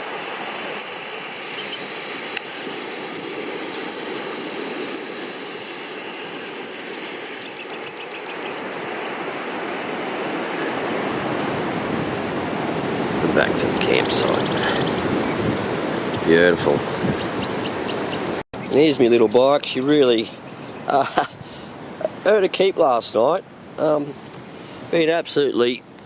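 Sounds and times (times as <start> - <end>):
surf washing onto beach: 0.0 - 25.8.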